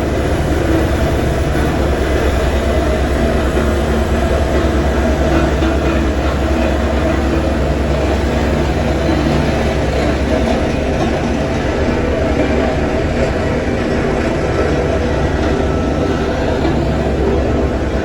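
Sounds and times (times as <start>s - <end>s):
heavy machinery engine rumble: 0.0s - 18.0s.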